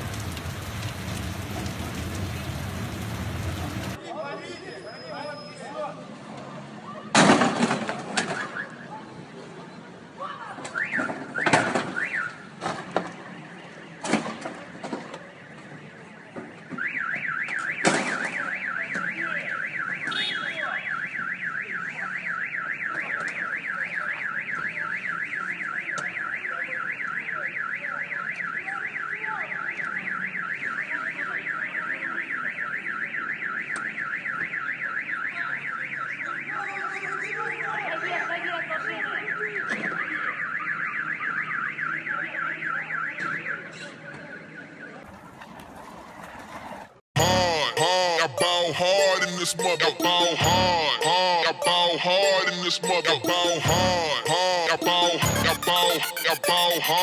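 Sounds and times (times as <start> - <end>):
car alarm warbling siren: 10.8 - 12.4, 16.7 - 38.0, 38.8 - 46.2, 47.2 - 57.0.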